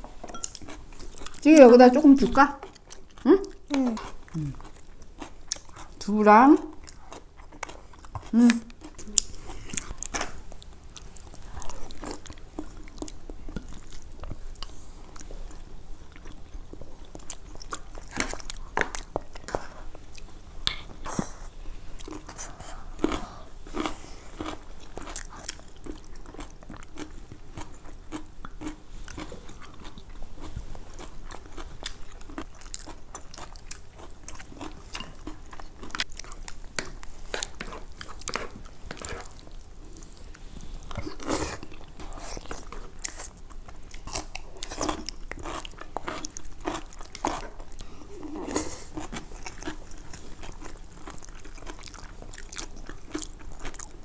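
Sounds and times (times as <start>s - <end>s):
people chewing and crunching food: 0.0s - 54.0s
chopsticks and spoons clicking on bowls: 0.2s - 0.7s.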